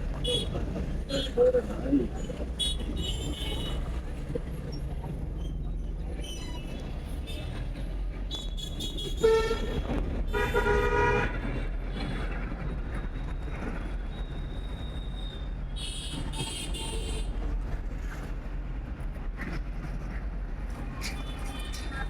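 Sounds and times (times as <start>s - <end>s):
low rumble of traffic: 0.0s - 22.0s
vehicle horn honking: 9.2s - 11.3s.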